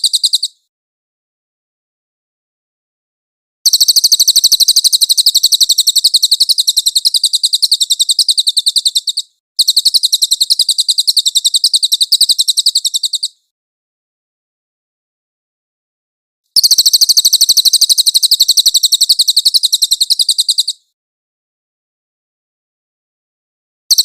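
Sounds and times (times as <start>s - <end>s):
songbird trilling: 0.0s - 0.6s, 3.7s - 13.4s, 16.6s - 20.8s.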